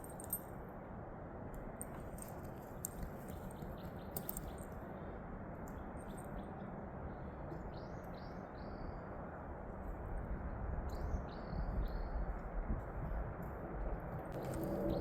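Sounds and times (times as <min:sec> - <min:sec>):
songbird chirping: 0:05.7 - 0:09.2, 0:10.9 - 0:12.4, 0:14.3 - 0:15.0
steady rushing background noise: 0:11.4 - 0:15.0.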